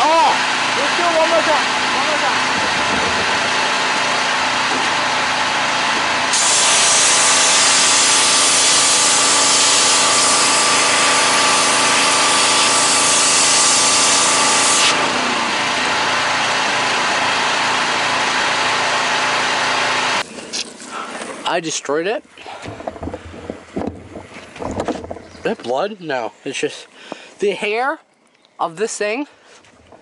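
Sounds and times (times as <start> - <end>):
high-pressure water jet hissing: 0.0 - 20.6
pressure washer engine running: 0.0 - 21.5.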